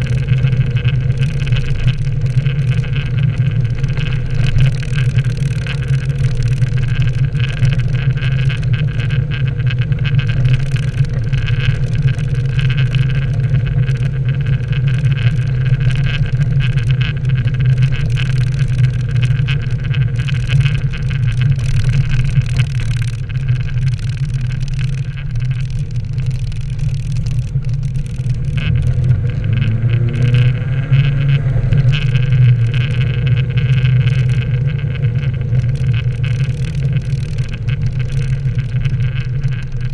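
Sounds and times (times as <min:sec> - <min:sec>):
car engine running: 0:00.0 - 0:39.9
road noise: 0:00.0 - 0:39.9.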